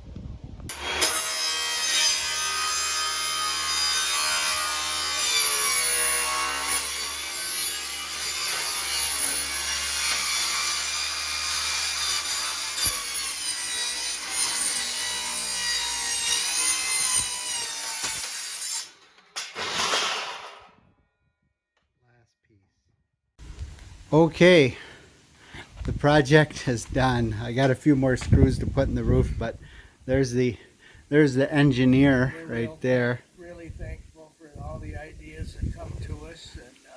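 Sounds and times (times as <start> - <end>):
power saw whining: 0.7 - 20.5.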